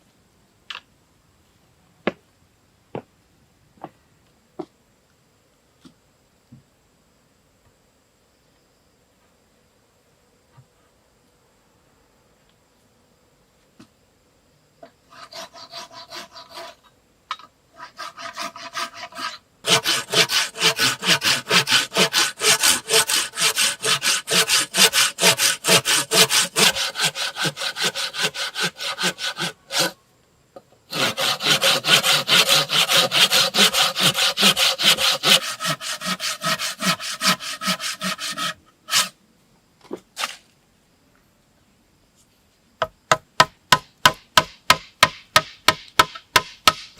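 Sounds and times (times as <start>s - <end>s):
hand saw cutting wood: 15.1s - 16.9s, 17.8s - 30.0s, 30.9s - 39.2s.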